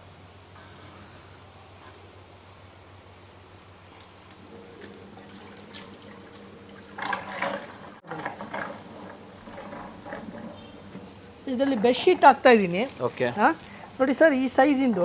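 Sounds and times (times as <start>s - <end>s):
water sloshing in washing machine: 3.8s - 15.0s.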